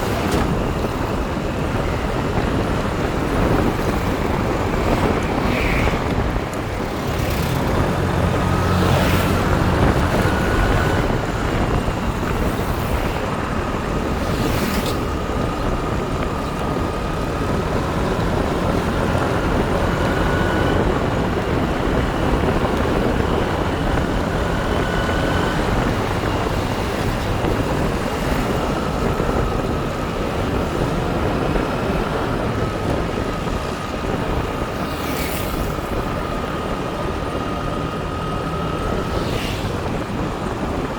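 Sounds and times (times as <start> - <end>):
motorbike running: 0.0 - 40.9
road and wind noise: 0.0 - 40.9
thin engine whine: 0.0 - 40.9.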